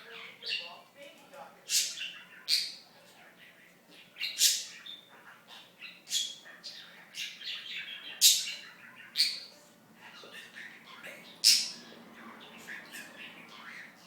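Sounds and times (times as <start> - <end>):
budgerigar chattering: 1.7 - 2.8, 4.0 - 9.5, 10.2 - 14.0
budgerigar squawking: 1.7 - 2.8, 4.2 - 9.5, 10.2 - 14.0.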